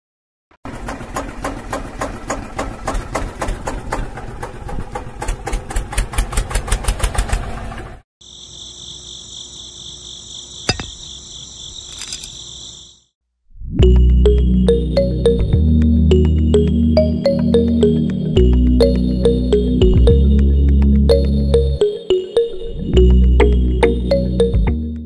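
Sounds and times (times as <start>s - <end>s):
engine mechanical knocking: 0.6s - 8.0s.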